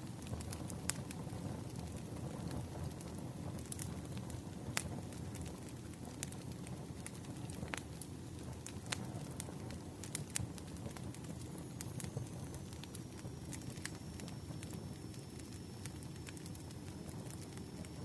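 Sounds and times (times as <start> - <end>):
logs crackling and popping: 0.0 - 18.0
low rumble of flames: 0.0 - 18.0
faint high whine: 9.8 - 18.0.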